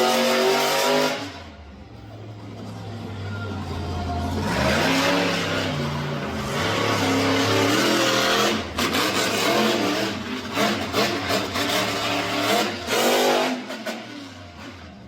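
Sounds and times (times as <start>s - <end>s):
monster truck engine revving: 0.0s - 15.0s.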